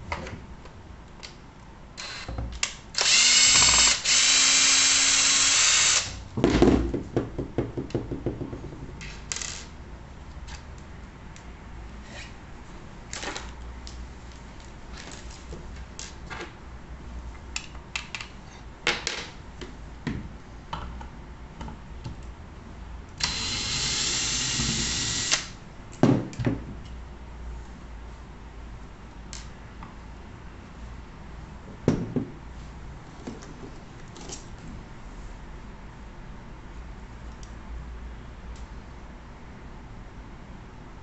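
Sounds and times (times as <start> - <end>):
loud knocks: 6.4 - 8.9.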